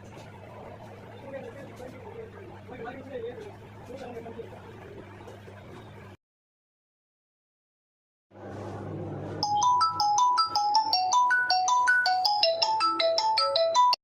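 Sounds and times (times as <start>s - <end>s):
phone ringtone melody: 9.4s - 14.0s.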